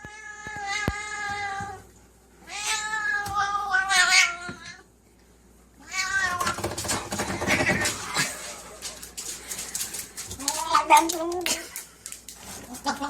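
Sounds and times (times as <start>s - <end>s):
cat meowing: 5.8s - 6.7s.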